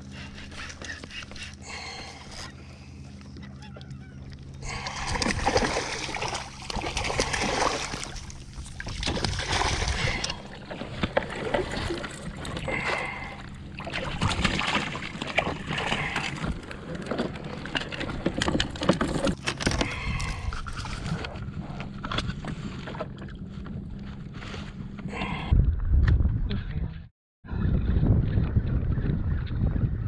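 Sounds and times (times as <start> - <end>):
paddle splashing water: 4.6 - 19.3.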